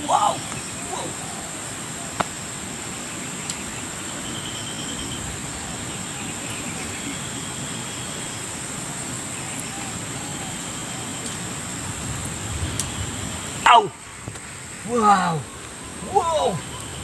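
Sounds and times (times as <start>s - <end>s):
high-pitched insect drone: 0.0s - 11.9s
outdoor hiss: 0.0s - 17.0s.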